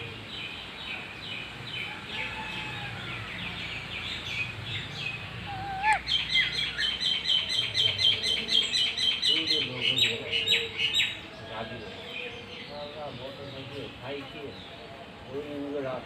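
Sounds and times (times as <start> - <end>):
parakeets chirping: 4.0 - 11.1.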